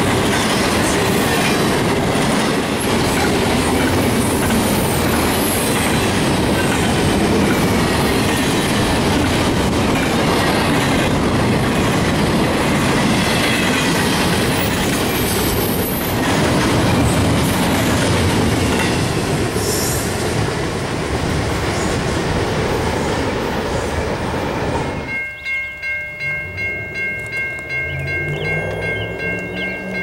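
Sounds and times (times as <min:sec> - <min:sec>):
train wheels clattering on rails: 0:00.0 - 0:24.0
crossing warning bell ringing: 0:25.0 - 0:30.0.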